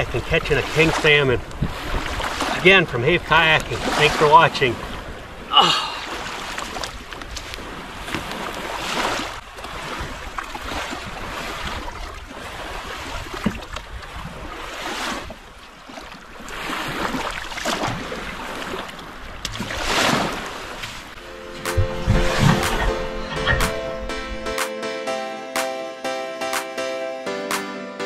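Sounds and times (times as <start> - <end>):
water lapping against kayak hull: 0.0 - 24.1
wind on microphone: 1.4 - 2.4, 21.7 - 24.2.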